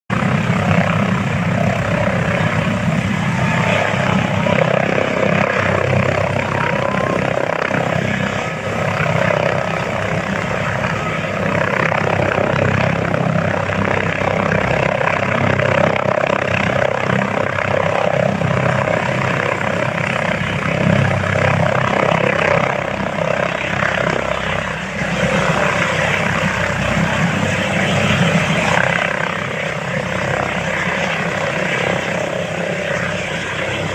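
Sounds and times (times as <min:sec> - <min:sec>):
helicopter engine and rotor: 0:00.1 - 0:33.9.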